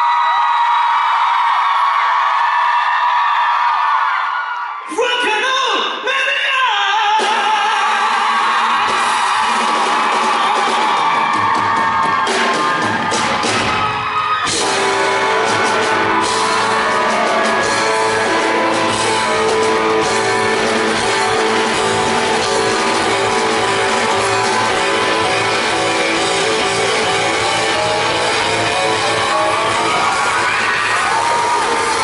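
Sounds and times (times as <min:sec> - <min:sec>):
rock band playing live: 0:08.2 - 0:32.0.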